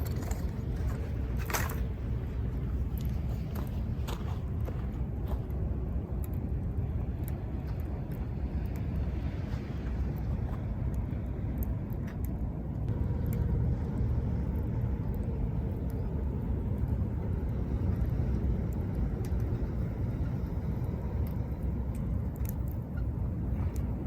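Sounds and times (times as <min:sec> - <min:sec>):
campfire crackling: 0:00.0 - 0:24.0.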